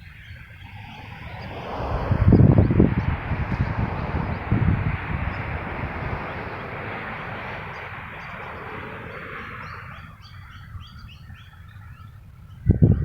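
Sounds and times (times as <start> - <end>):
small birds chirping: 0.0 - 13.0
wind buffeting microphone: 0.0 - 13.0
wind rushing: 0.6 - 10.2.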